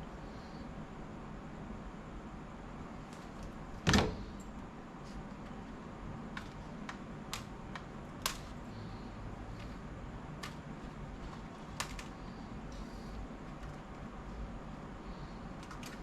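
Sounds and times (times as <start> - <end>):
steady low hum: 0.0 - 16.0
plastic parts clicking: 10.4 - 10.6, 11.2 - 12.2, 15.6 - 16.0.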